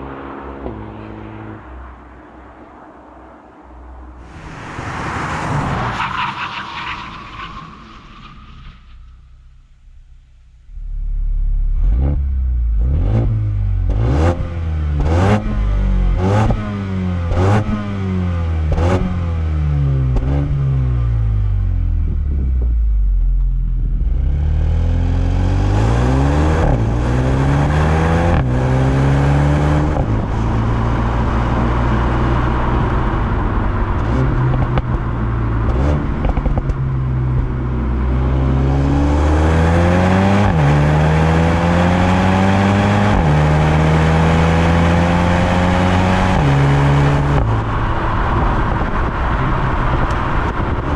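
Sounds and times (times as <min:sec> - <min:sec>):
road and wind rush: 0:00.0 - 0:50.9
car engine revving in blips: 0:10.4 - 0:50.9
car accelerating hard: 0:11.1 - 0:21.0, 0:24.0 - 0:50.9
exhaust cracks: 0:29.9 - 0:38.2.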